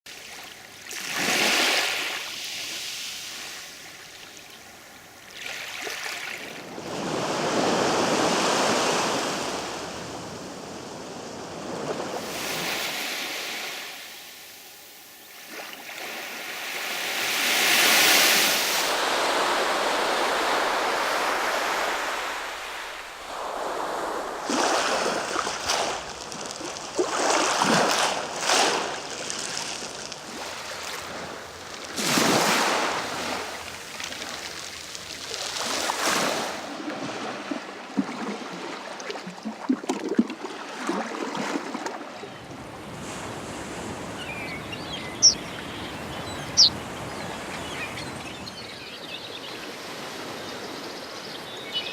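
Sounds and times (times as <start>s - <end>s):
sea waves breaking: 0.2s - 3.8s, 5.4s - 48.2s.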